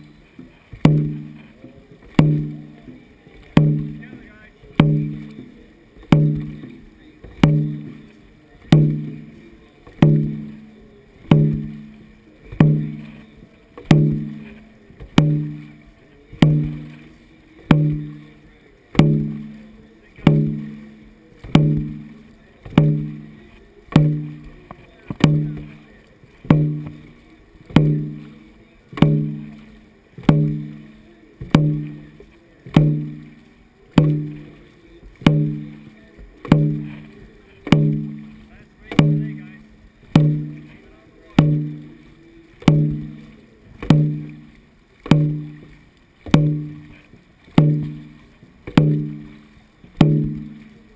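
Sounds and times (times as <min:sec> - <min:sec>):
large drum booming: 0:00.8 - 0:01.4, 0:03.5 - 0:09.4, 0:10.0 - 0:13.2, 0:13.8 - 0:15.8, 0:16.4 - 0:17.0, 0:17.7 - 0:18.2, 0:19.0 - 0:28.4, 0:29.0 - 0:29.6, 0:30.2 - 0:33.4, 0:35.2 - 0:40.8, 0:41.4 - 0:42.0, 0:42.6 - 0:45.7, 0:46.3 - 0:47.0, 0:47.6 - 0:50.7.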